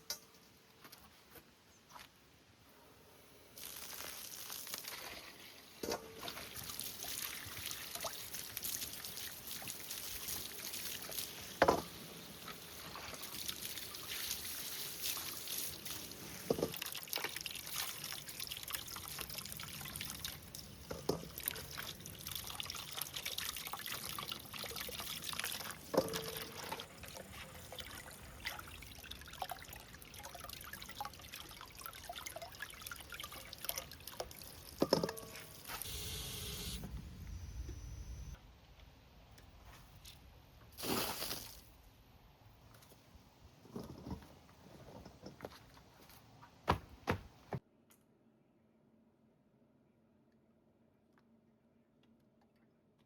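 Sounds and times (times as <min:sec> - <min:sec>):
water trickling and splashing: 0:03.6 - 0:35.9.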